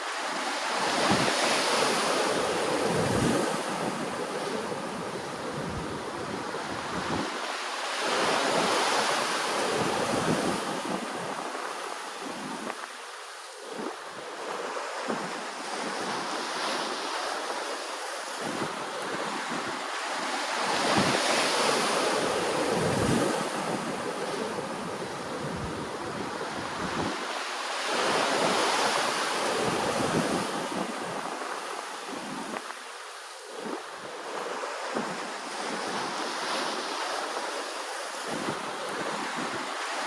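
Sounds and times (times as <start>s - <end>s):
wind rumbling on microphone: 0.4s - 40.0s.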